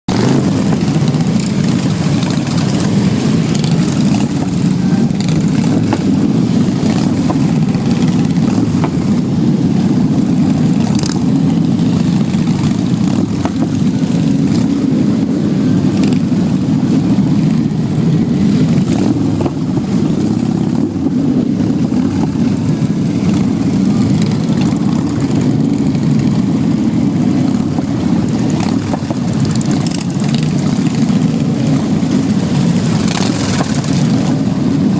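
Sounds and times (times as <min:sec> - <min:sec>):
motorcycle engine droning: 0:00.1 - 0:34.9.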